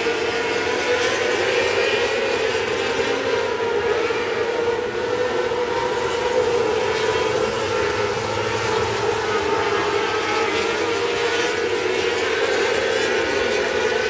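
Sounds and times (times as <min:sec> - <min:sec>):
race car engine high pitch: 0:00.0 - 0:14.0.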